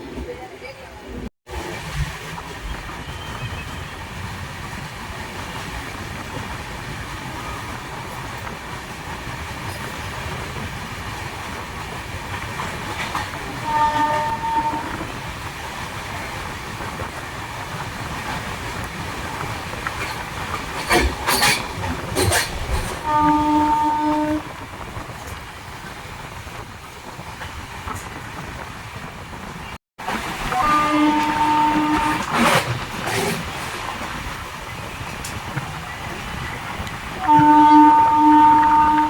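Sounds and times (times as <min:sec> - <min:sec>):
train wheels rumbling and rattling: 0:00.0 - 0:39.0
train horn: 0:13.6 - 0:15.2, 0:23.0 - 0:24.6, 0:30.4 - 0:32.6, 0:37.2 - 0:39.0.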